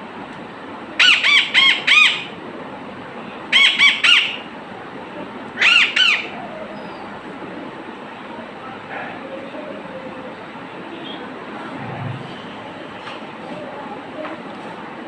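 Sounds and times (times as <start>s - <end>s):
pet bird squawking: 1.0s - 2.3s, 3.6s - 4.5s, 5.6s - 6.3s.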